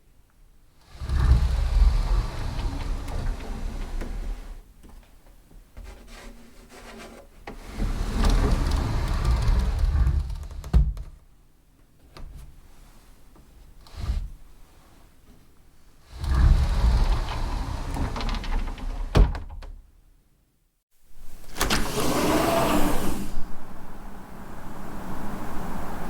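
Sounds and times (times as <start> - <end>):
door rumbling: 0.9 - 4.6, 7.6 - 11.1, 16.1 - 19.7, 21.2 - 24.7
door thud: 19.1 - 19.7.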